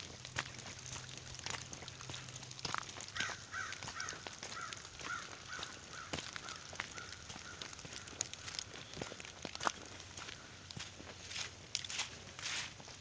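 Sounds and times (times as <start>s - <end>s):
footsteps on gravel: 0.0s - 13.0s
runoff water rushing: 0.0s - 13.0s.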